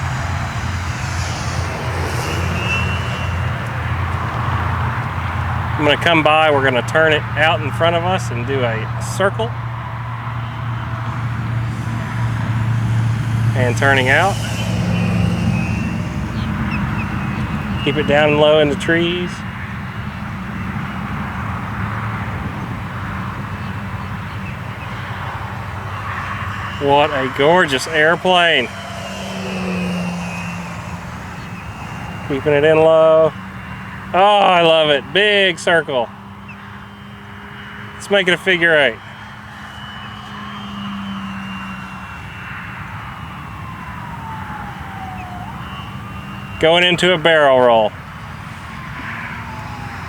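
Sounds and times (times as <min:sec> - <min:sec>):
model plane motor humming: 0:00.0 - 0:05.7, 0:10.6 - 0:19.4, 0:24.1 - 0:34.6, 0:36.4 - 0:47.3.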